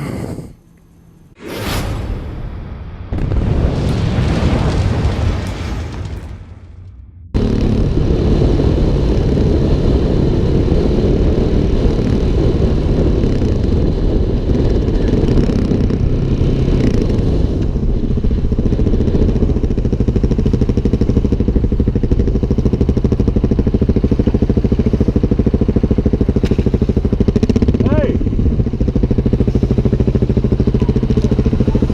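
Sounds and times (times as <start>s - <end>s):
motorcycle engine running: 7.3s - 31.9s.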